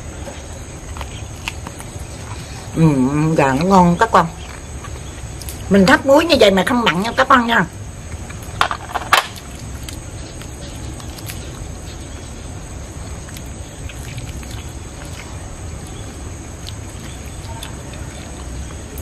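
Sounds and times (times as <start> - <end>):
person chewing meat: 13.1 - 19.0.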